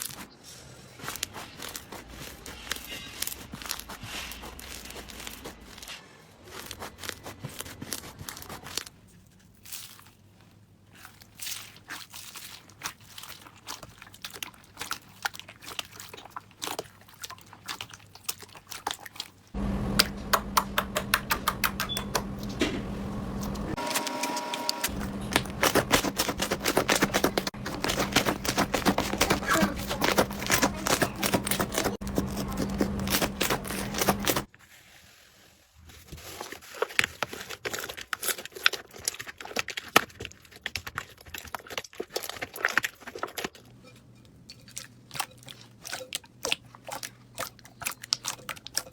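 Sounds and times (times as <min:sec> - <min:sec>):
steady low hum: 0:19.6 - 0:34.5.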